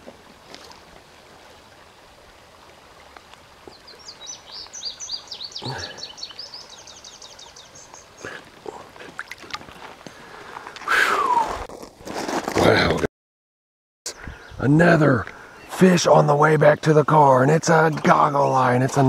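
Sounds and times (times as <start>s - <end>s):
songbird chirping: 2.6s - 9.7s, 14.1s - 19.0s
water splash: 9.0s - 9.8s.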